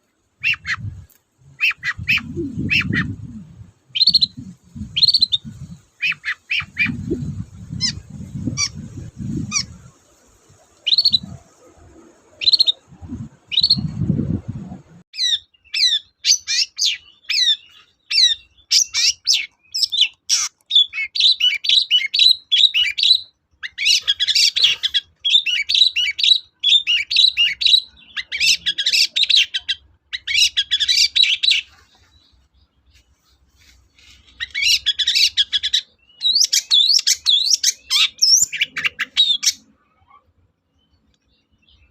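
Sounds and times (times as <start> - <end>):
bird chattering song: 0.4 - 14.0, 15.2 - 41.9
bird sharp calls: 0.4 - 14.0, 15.2 - 40.3.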